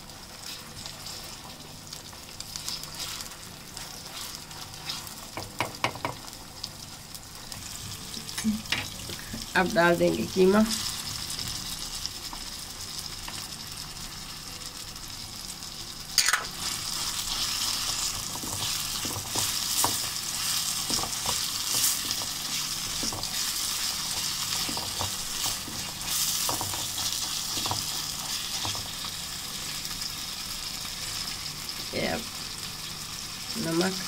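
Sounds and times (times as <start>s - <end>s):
mince sizzling in a pan: 0.0s - 34.0s
wooden spatula scraping a pan: 2.6s - 5.3s, 17.3s - 28.9s.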